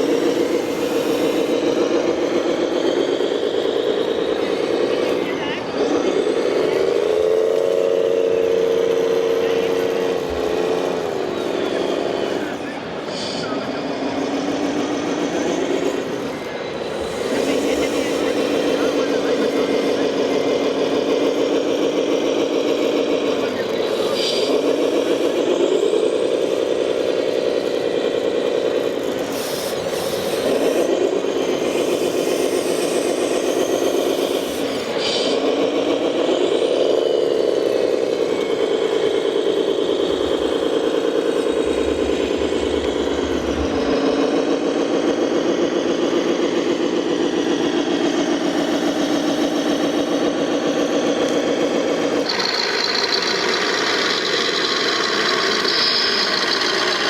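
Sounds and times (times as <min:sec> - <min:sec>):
model truck engine revving: 0:00.0 - 0:57.0.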